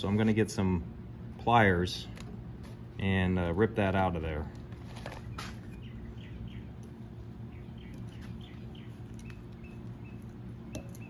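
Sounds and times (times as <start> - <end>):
low electrical hum: 0.0 - 11.0
small bird chirping: 5.2 - 11.0.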